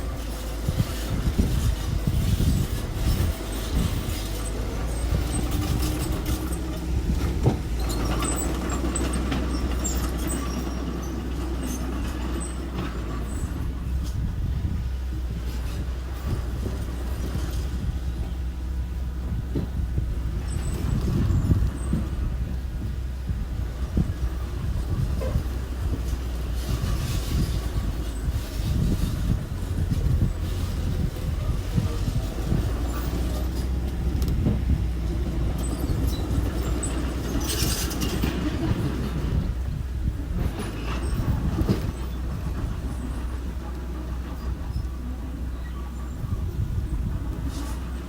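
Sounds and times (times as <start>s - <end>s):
metallic clanks and rattles: 0.0s - 14.7s, 23.8s - 45.1s
low engine drone: 0.0s - 48.0s.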